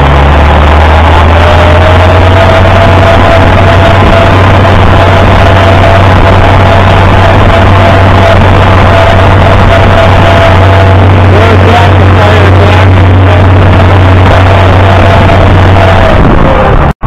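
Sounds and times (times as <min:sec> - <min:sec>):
tractor engine droning: 0:00.0 - 0:17.0.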